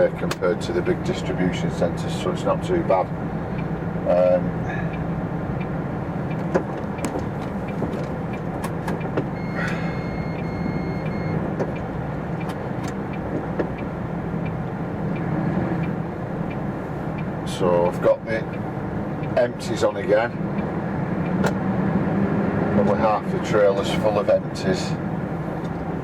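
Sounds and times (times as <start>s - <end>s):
diesel lorry engine running: 0.0s - 26.0s
steady electronic beep: 9.3s - 11.5s.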